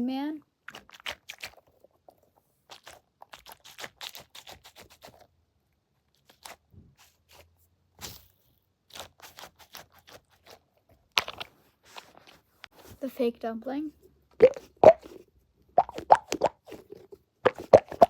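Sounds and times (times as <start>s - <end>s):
foam toy squeezed crackling: 0.6s - 1.7s, 2.7s - 5.3s, 8.9s - 12.2s, 14.4s - 15.2s, 15.8s - 18.0s.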